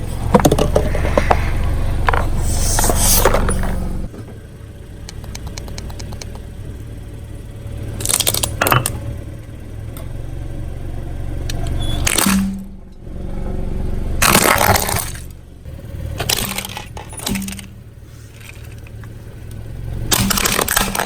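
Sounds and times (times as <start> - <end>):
tire crushing objects: 0.0 - 4.4, 14.2 - 15.4, 16.1 - 21.0
car engine running low: 0.0 - 21.0.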